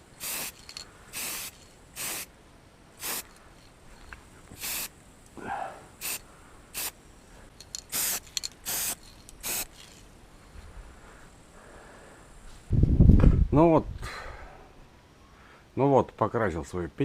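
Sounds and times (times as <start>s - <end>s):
aerosol can spraying hiss: 0.0s - 2.3s, 3.0s - 3.4s, 4.5s - 5.1s, 6.0s - 7.1s, 7.8s - 10.0s.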